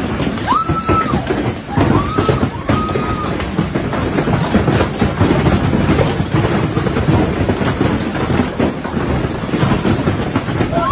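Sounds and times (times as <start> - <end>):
hailstones clattering: 0.0 - 10.9.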